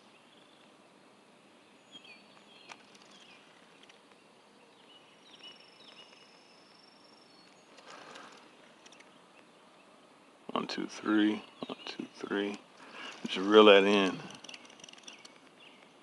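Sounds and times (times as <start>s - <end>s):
faint bird chirps: 1.6s - 16.0s
high-pitched insect tone: 13.9s - 15.3s.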